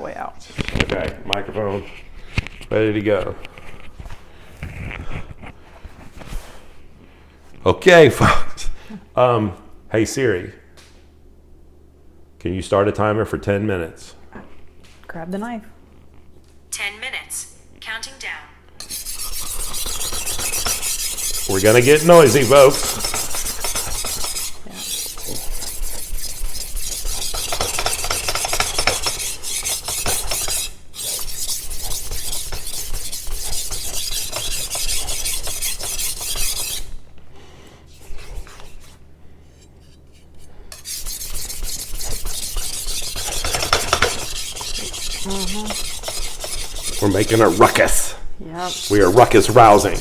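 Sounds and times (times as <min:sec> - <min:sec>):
knife rasping on whetstone: 0:18.8 - 0:36.9, 0:37.9 - 0:50.0.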